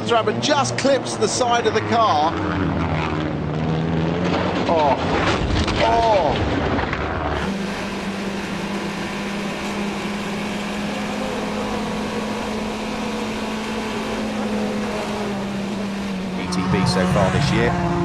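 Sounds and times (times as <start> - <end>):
steady mechanical drone: 0.0 - 18.0.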